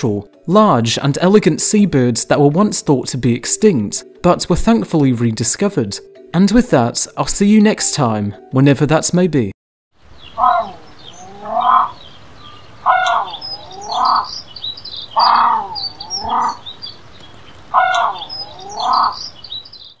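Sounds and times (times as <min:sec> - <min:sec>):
small birds chirping: 0:10.0 - 0:20.0
bird two-note calls: 0:10.2 - 0:16.8, 0:17.7 - 0:19.4.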